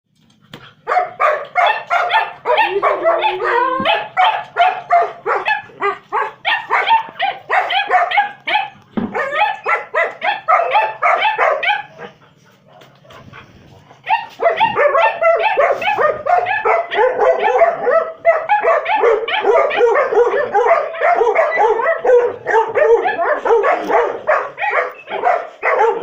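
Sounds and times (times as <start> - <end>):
dog barking and yelping: 0.8 - 26.0
dog whining: 14.0 - 26.0.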